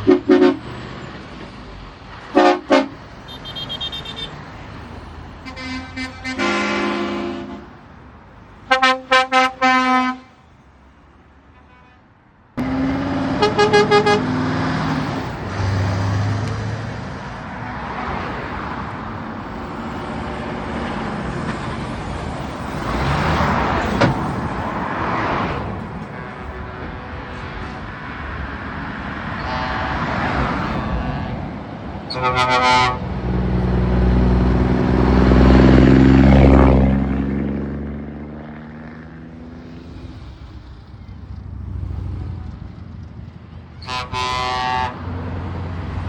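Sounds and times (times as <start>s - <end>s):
higher-pitched horn toots: 0.0s - 0.6s, 2.3s - 4.3s, 5.4s - 7.7s, 8.7s - 10.4s, 13.3s - 14.4s, 32.0s - 33.1s, 43.8s - 45.0s
truck air horn blasts: 0.0s - 0.7s, 2.3s - 4.4s, 5.4s - 7.8s, 8.7s - 10.5s, 11.5s - 12.1s, 13.3s - 14.5s, 26.0s - 27.9s, 32.0s - 33.2s, 43.8s - 45.1s
heavy truck engines pulling away: 0.0s - 7.0s, 12.6s - 46.0s.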